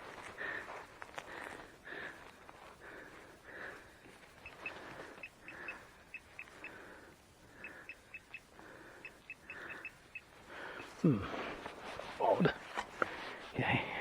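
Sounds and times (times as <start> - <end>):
metal detector beeping: 4.4 - 6.9, 7.5 - 11.0.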